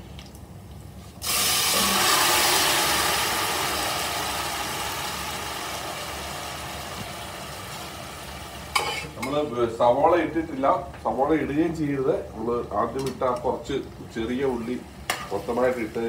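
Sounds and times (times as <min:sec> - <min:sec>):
meat sizzling in a frying pan: 0:01.2 - 0:09.2.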